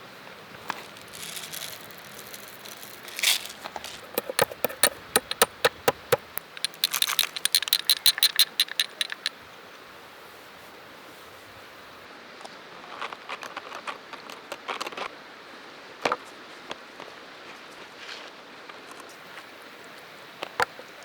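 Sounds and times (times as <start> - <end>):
utensil scraping: 0.6 - 9.3
clinking with ringing tone: 1.0 - 9.3
sharp knocks: 3.9 - 9.3.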